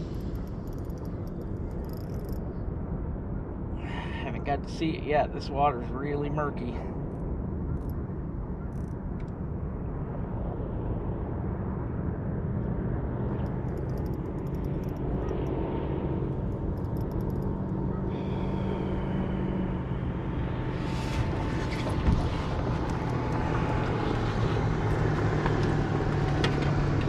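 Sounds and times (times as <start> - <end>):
rapid ticking: 0.0 - 2.4, 13.4 - 15.5, 16.5 - 17.6.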